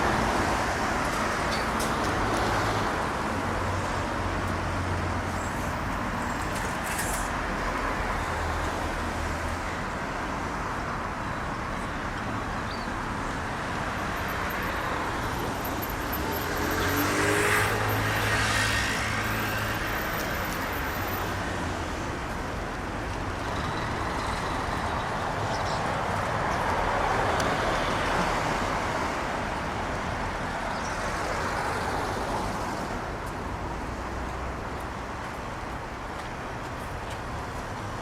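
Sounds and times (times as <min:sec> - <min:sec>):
road traffic: 0:00.0 - 0:38.0
vehicles passing: 0:00.0 - 0:38.0.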